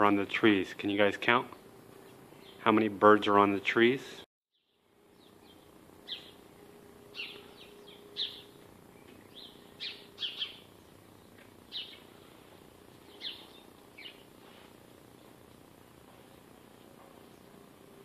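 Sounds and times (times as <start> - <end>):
small birds chirping: 1.5 - 2.8, 4.5 - 14.4.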